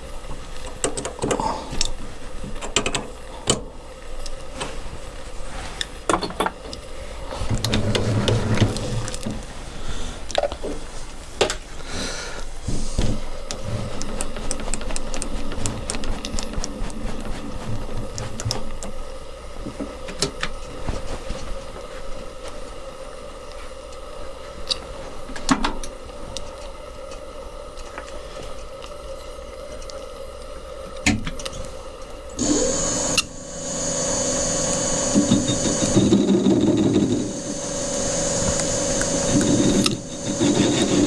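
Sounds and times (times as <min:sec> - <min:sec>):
metal lathe whining: 0:32.4 - 0:41.0.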